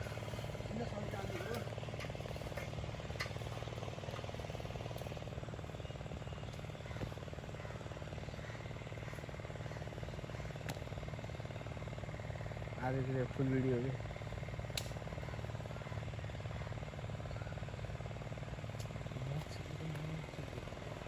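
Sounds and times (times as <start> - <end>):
chainsaw engine idling: 0.0 - 21.0
sharp clicks: 14.7 - 15.0.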